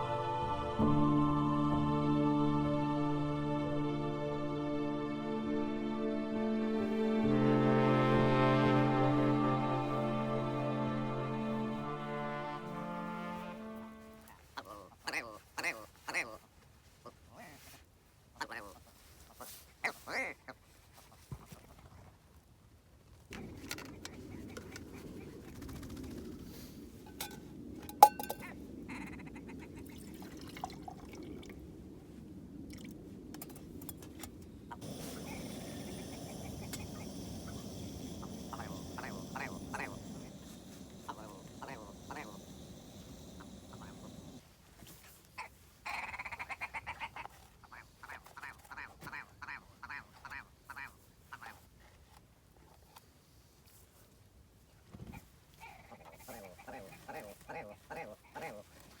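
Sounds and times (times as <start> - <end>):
steady low rush: 0.0 - 14.3, 34.5 - 44.4
metal pots and utensils clinking: 27.1 - 28.4
bird calling: 34.7 - 44.4.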